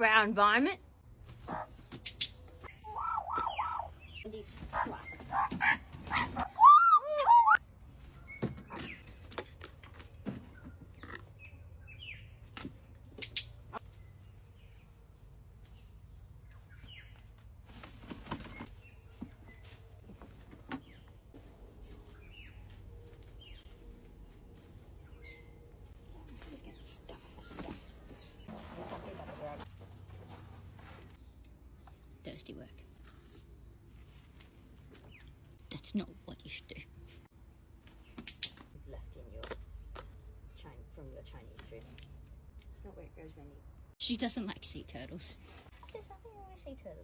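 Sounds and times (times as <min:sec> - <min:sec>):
bird squawking: 0:02.6 - 0:07.6.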